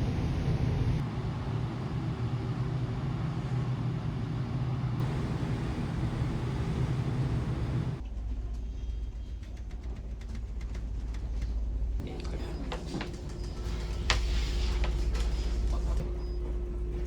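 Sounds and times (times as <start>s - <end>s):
deep engine rumble: 0.0s - 8.0s
ferry engines droning: 0.0s - 8.0s, 12.0s - 17.0s.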